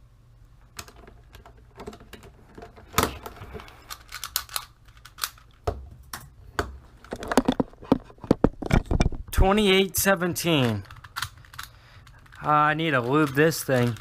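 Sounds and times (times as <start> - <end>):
plastic puzzle cube clicking: 3.0 - 5.6, 10.6 - 14.0.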